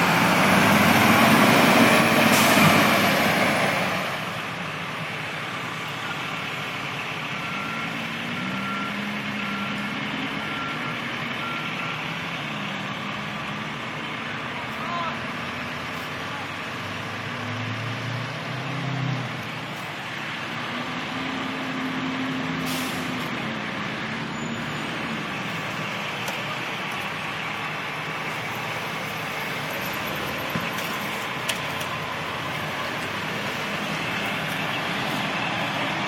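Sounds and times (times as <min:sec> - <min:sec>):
diesel engines rumbling: 0:00.0 - 0:36.0
air brake hiss: 0:02.3 - 0:02.7, 0:22.6 - 0:23.2.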